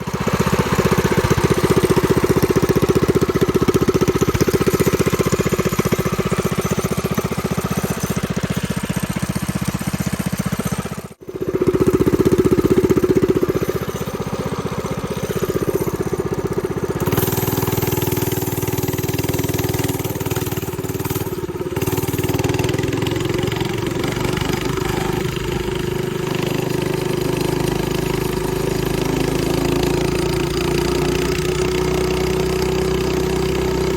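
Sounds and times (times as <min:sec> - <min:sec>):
mini bike engine revving: 0:00.0 - 0:33.9.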